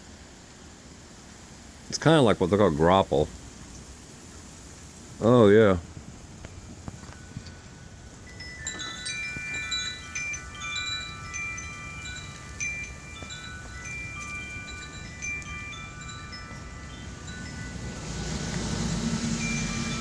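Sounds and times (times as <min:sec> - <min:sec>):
wind chimes ringing: 0:05.2 - 0:20.0
low steady rumble: 0:05.8 - 0:20.0.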